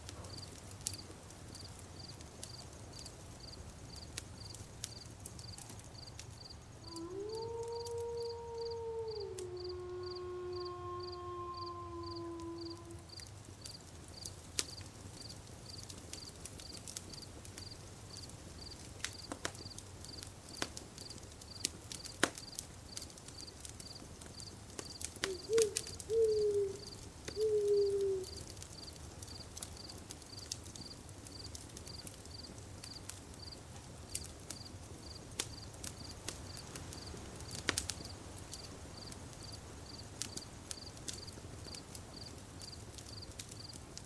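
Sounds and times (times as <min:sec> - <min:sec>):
burning wood popping: 0:00.0 - 0:06.7, 0:12.4 - 0:44.0
campfire crackling: 0:00.0 - 0:44.0
insect chirping: 0:04.4 - 0:13.8, 0:24.9 - 0:31.5, 0:34.6 - 0:43.7.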